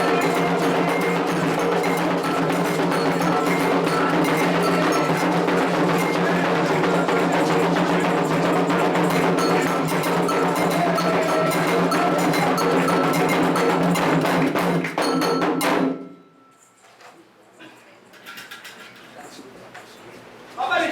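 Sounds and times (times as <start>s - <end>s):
hand drums playing: 0.0s - 16.2s
metal bell striking rhythm: 0.0s - 16.8s.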